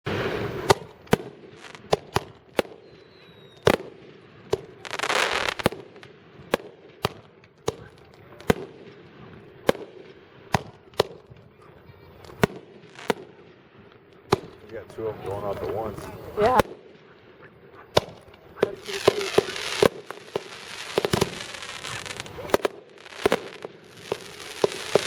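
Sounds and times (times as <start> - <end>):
fireworks bangs: 0.0 - 25.0
firework hissing rush: 0.1 - 0.9, 4.8 - 5.7, 18.7 - 25.0.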